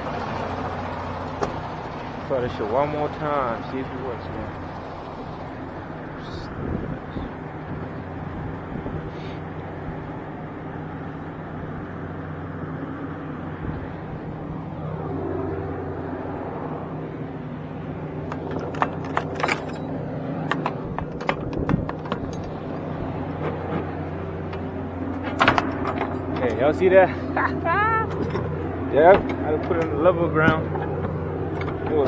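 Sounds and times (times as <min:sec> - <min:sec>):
diesel truck engine idling: 0:00.0 - 0:32.0
sharp clicks and knocks: 0:18.2 - 0:26.8, 0:28.1 - 0:32.0.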